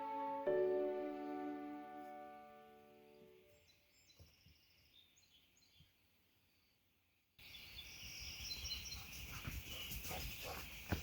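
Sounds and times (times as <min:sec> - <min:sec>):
birds chirping: 0:02.9 - 0:06.8, 0:07.4 - 0:11.0.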